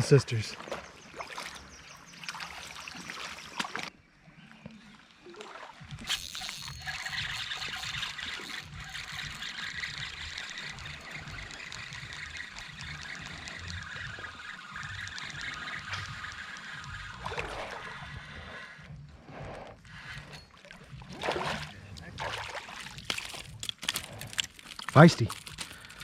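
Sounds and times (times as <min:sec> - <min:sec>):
creek water trickling: 0:00.0 - 0:03.9, 0:04.8 - 0:18.6, 0:19.9 - 0:26.0.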